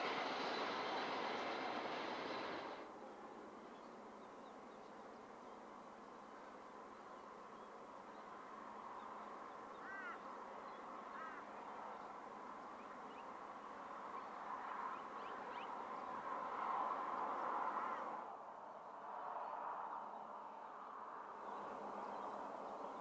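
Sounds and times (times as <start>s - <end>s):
outdoor rushing noise: 0.0s - 2.9s.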